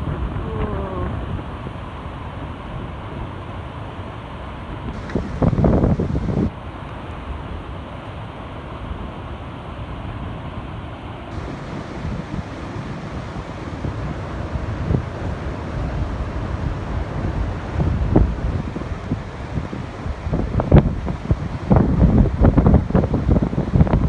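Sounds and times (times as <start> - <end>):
wind buffeting microphone: 4.9 - 6.5, 11.3 - 24.0
heavy rain falling: 5.0 - 6.5, 11.3 - 24.0.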